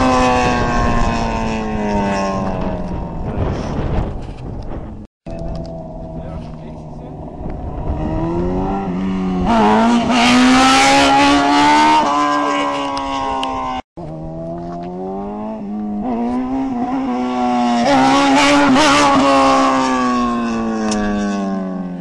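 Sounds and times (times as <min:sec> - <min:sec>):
sport bike engine revving: 0:05.4 - 0:21.8.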